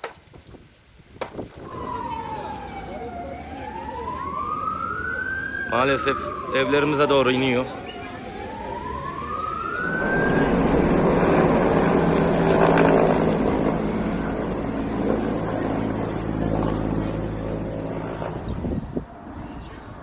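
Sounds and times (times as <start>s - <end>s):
siren wailing: 1.5s - 18.2s
propeller aircraft engine drone: 6.3s - 20.0s.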